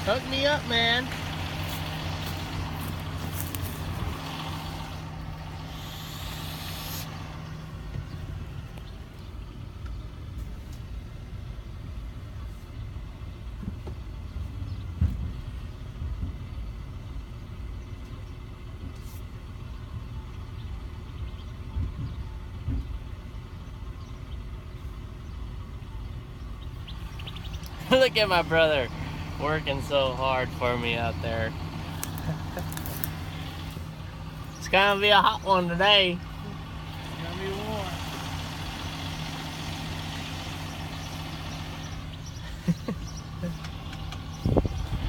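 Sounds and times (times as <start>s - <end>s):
vehicle engine rumbling: 0.0s - 45.0s
hiss: 5.7s - 7.2s.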